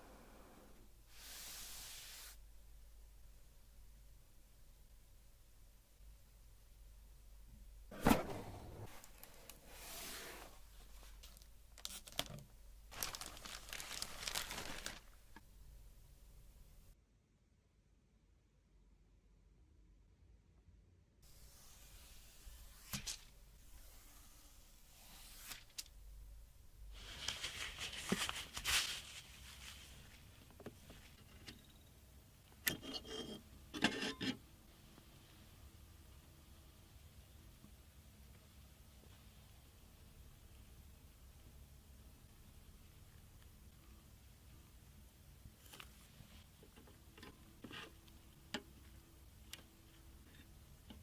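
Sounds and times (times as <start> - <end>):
packaging crinkling and tearing: 11.2 - 15.4.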